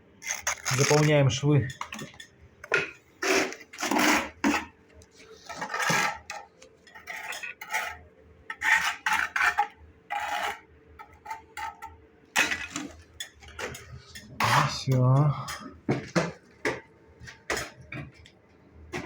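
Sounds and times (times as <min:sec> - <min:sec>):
spatula scraping mortar: 0:00.2 - 0:01.4, 0:02.8 - 0:13.0, 0:13.6 - 0:15.0.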